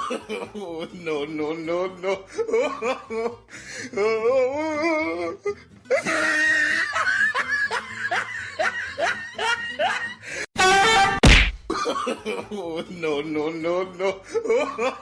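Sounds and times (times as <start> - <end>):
music: 0.4 - 15.0
person laughing: 5.9 - 10.2
loud thump: 11.1 - 11.7.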